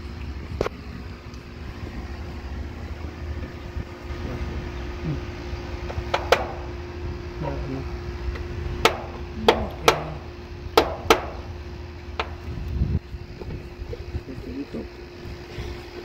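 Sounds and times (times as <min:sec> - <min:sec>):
faint steady hum: 0:00.0 - 0:16.0
hand tools clicking and knocking: 0:08.8 - 0:10.2.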